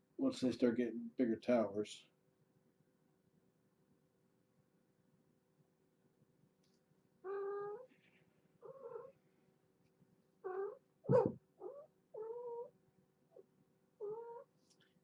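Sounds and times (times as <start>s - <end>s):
cat meowing: 7.2s - 7.9s, 8.6s - 9.1s, 10.4s - 12.7s, 14.0s - 14.5s.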